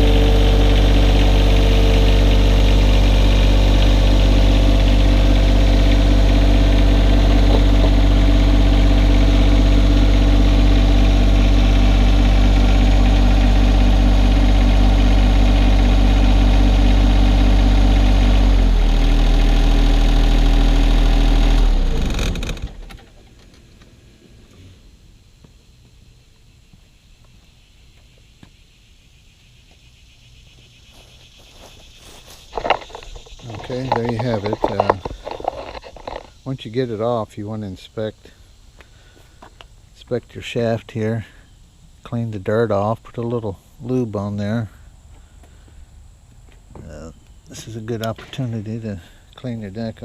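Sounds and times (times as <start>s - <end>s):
tractor diesel engine running: 0.0s - 24.6s, 31.3s - 37.6s.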